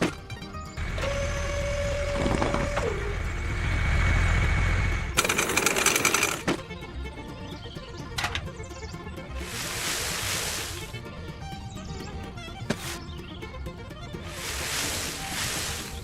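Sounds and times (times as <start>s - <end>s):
small motor whining: 0.8s - 6.4s
rapid mechanical rattle: 0.8s - 6.6s.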